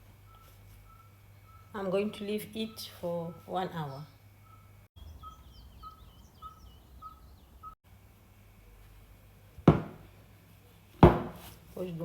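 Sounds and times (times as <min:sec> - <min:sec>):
bird-like chirping: 0:00.2 - 0:01.7, 0:02.7 - 0:07.8
sharp knock: 0:09.7 - 0:10.0.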